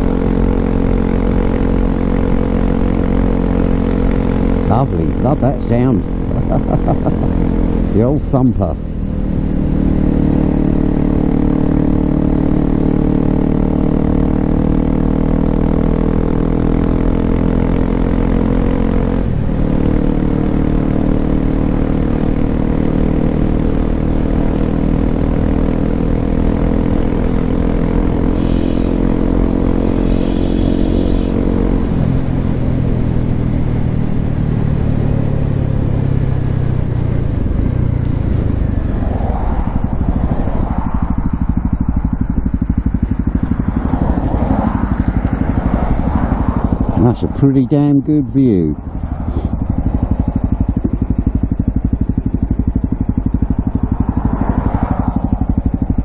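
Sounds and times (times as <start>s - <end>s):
motorcycle engine running: 0.0s - 56.0s
short high squeal: 28.4s - 29.0s, 30.0s - 31.4s.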